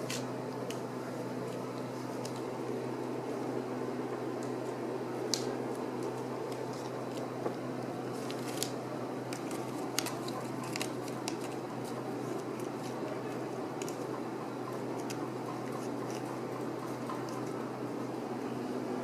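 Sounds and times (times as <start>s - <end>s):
steady low hum: 0.0s - 19.0s
kittens clicking and scratching: 5.4s - 17.7s.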